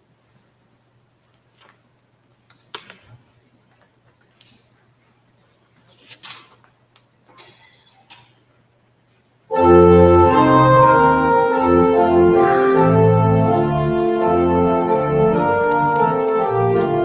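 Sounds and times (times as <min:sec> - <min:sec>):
church organ playing a hymn: 0:09.5 - 0:17.0.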